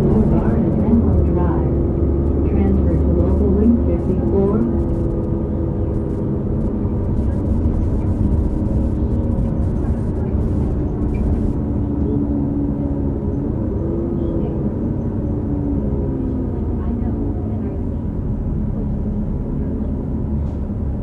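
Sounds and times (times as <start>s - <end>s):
transmission whine: 0.0s - 12.3s
bus diesel engine drone: 0.0s - 21.0s.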